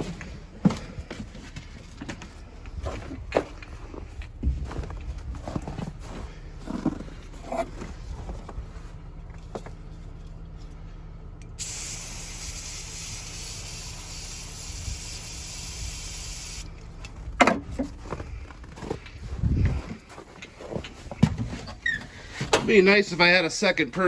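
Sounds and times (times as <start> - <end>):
aerosol can spraying hiss: 11.6 - 16.7.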